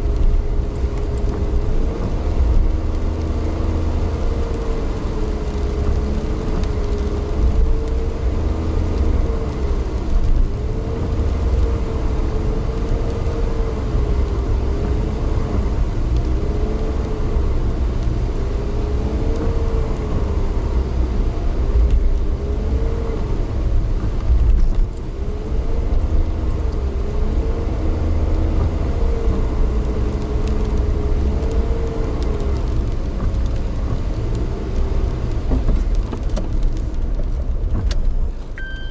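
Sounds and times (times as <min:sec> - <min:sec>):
vehicle deep rumble: 0:00.0 - 0:38.9.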